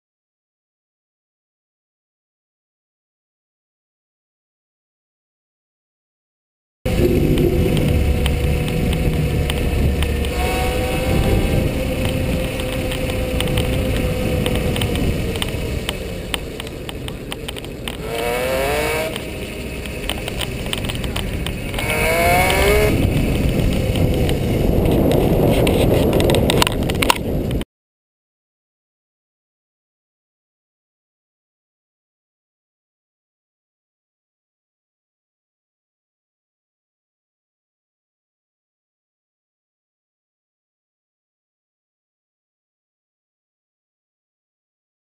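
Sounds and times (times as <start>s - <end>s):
electric bicycle motor whining: 6.9s - 26.2s
wind noise on microphone: 6.9s - 27.7s.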